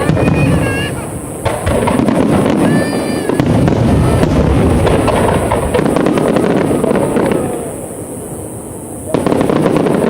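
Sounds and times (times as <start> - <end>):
fireworks booming and crackling: 0.0 - 10.0.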